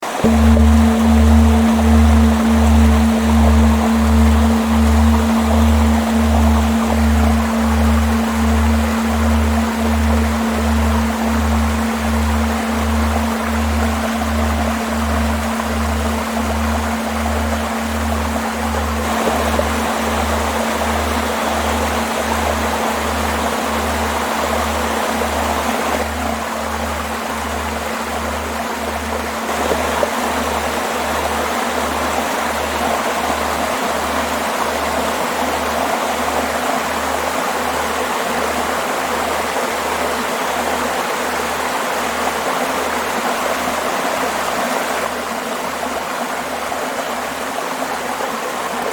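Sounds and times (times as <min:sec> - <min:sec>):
low pulsing throb: 0:00.2 - 0:35.9.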